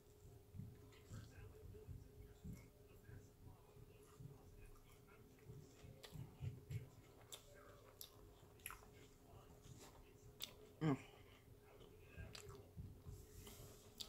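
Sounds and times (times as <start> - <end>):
mouth-closed chewing: 4.7 - 12.7.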